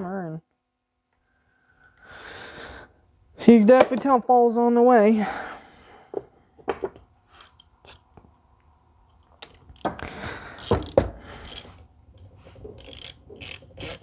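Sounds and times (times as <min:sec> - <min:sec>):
tools rustling and clattering: 0:06.1 - 0:14.0.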